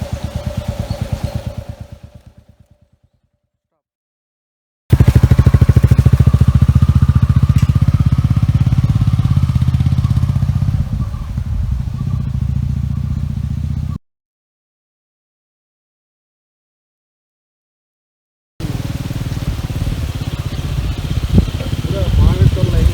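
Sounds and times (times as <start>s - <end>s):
engine running with fast pulse: 0.0s - 3.1s, 4.9s - 14.0s, 18.6s - 22.9s.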